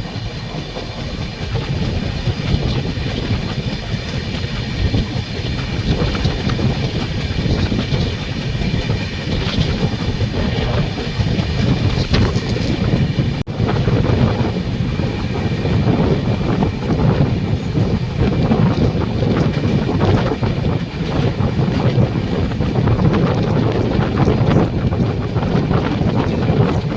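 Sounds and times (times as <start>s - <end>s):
train rumble: 0.0s - 26.9s
train wheels clattering on rails: 0.0s - 26.9s
wind noise: 0.0s - 26.9s.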